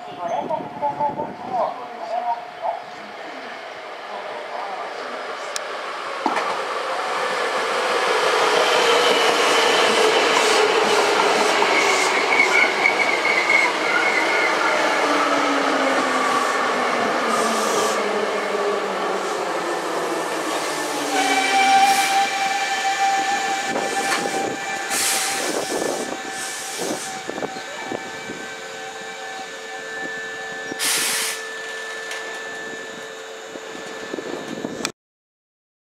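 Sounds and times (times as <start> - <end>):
steady train hum: 0.0 - 34.9
train motor whine: 5.0 - 34.9
train clanks: 6.2 - 6.7, 8.8 - 13.2
air hiss: 17.3 - 18.0, 24.9 - 27.3, 30.8 - 31.4.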